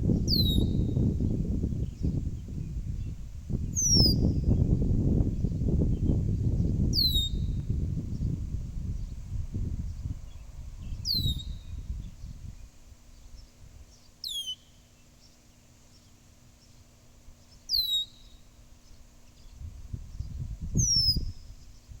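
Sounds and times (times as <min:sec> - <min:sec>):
low rumbling noise: 0:00.0 - 0:12.6
blackbird whistled calls: 0:00.2 - 0:01.0, 0:03.7 - 0:04.6, 0:07.0 - 0:07.6, 0:10.8 - 0:11.8, 0:14.2 - 0:14.8, 0:17.7 - 0:18.4, 0:20.8 - 0:21.9.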